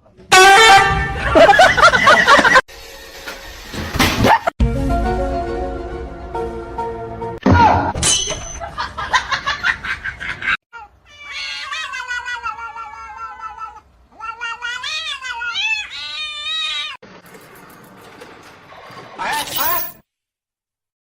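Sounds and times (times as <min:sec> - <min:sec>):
cat yowling: 0:10.7 - 0:17.0.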